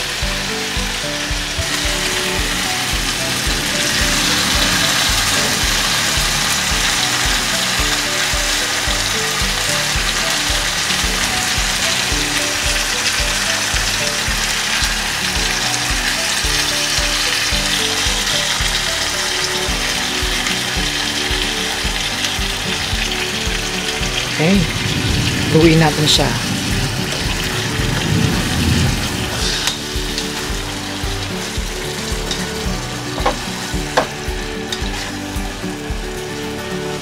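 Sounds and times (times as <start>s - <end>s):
food sizzling in a wok: 0.0s - 37.0s
music with a steady beat: 0.0s - 37.0s.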